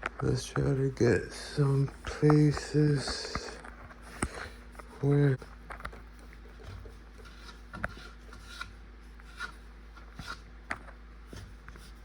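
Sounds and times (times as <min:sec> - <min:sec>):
rubbing and scrubbing: 0:01.4 - 0:10.5
small clicks and scrapes: 0:01.8 - 0:12.0.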